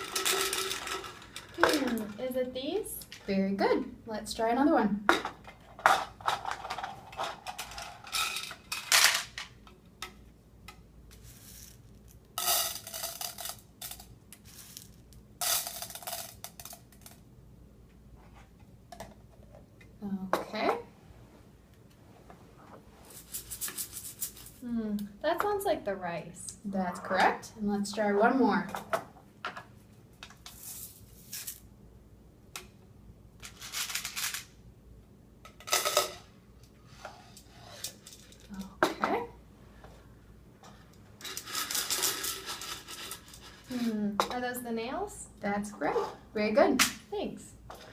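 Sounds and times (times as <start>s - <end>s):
beads and rice rattling in bucket: 0.0s - 2.1s, 11.2s - 16.8s
nails rattling in a bucket: 0.0s - 3.2s, 5.2s - 9.5s, 12.4s - 17.2s, 41.2s - 43.8s.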